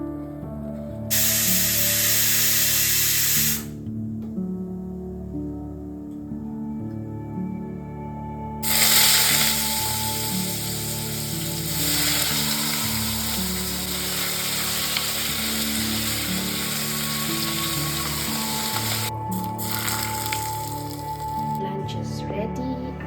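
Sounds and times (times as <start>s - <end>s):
soft background music: 0.0s - 23.0s
food sizzling in hot oil: 1.1s - 3.7s, 8.6s - 21.6s.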